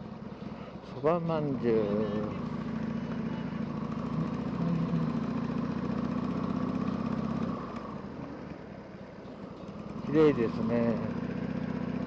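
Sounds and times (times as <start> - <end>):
motorcycle engine running: 1.4 - 8.4.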